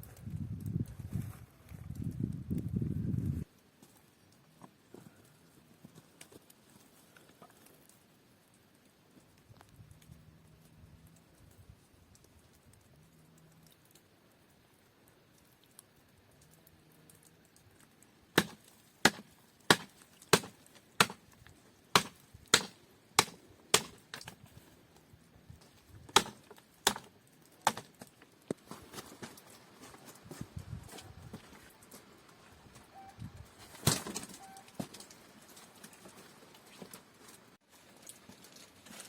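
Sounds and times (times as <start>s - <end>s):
hatchet chopping wood: 18.4s - 21.2s, 21.9s - 24.4s, 26.1s - 28.0s.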